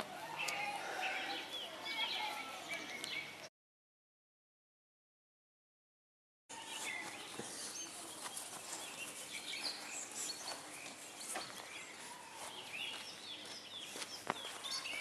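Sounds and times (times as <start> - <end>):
birds chirping: 0.0 - 3.5, 6.5 - 15.0.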